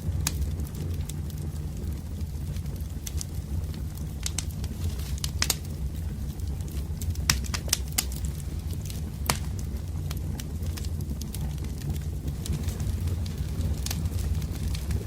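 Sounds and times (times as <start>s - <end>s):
low rumble: 0.0s - 15.0s
wood fire crackling and popping: 0.0s - 15.0s.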